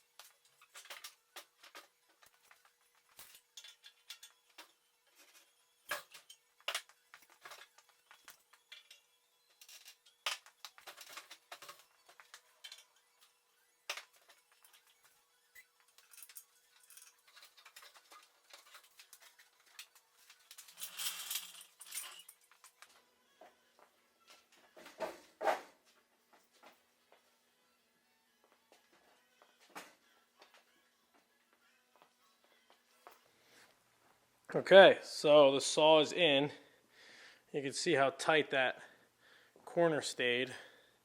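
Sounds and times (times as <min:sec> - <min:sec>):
metal tools clicking and knocking: 0:00.2 - 0:13.3, 0:13.9 - 0:22.9.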